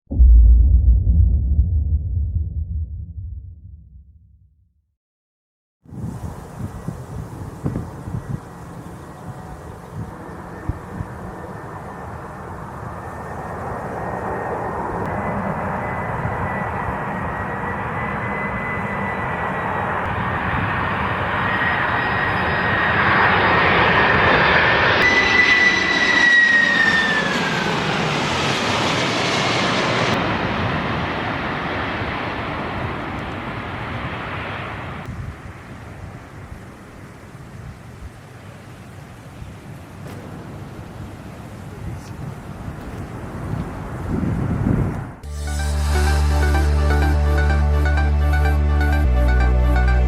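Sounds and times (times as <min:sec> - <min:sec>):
jet engines passing: 0:06.2 - 0:45.2.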